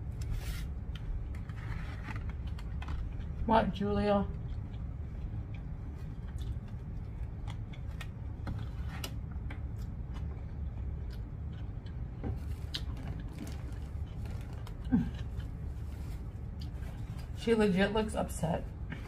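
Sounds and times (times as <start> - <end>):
low background hum: 0.0 - 19.0
chewing salad: 4.3 - 8.3, 9.4 - 17.4.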